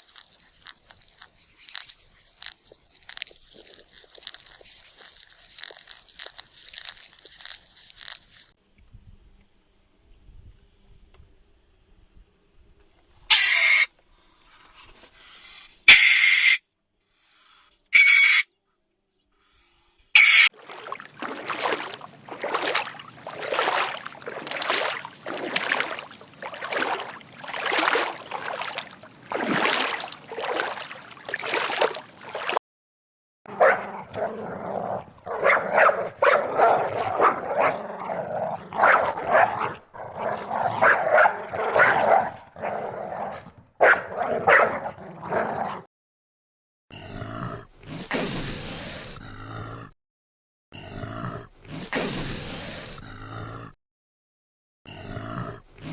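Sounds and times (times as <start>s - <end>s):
dog barking and whimpering: 33.5s - 45.8s.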